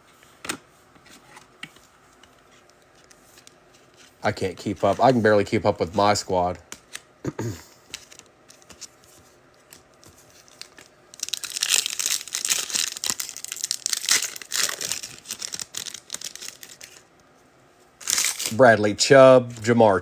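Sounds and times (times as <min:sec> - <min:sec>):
foil wrapper crinkling and tearing: 0:09.7 - 0:17.1, 0:18.0 - 0:18.7.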